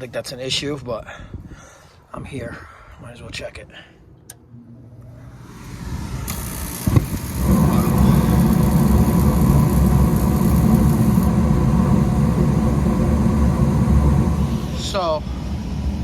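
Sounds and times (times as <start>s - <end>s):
gas heating unit rumbling: 5.2s - 16.0s.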